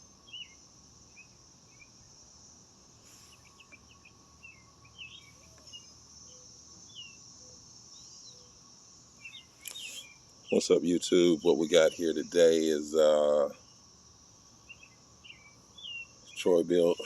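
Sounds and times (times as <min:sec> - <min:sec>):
high insect drone: 0:00.0 - 0:17.0
bird chirps and whistles: 0:09.2 - 0:10.2.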